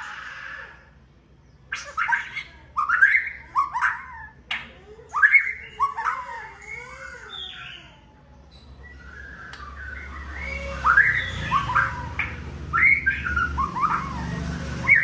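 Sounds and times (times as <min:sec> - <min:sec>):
bird singing whistled notes: 0:05.2 - 0:06.4, 0:08.6 - 0:15.0.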